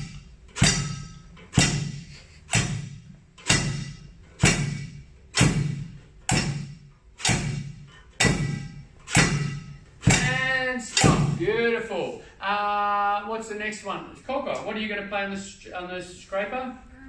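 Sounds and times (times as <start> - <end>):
improvised drums struck with sticks: 0.0 - 11.6.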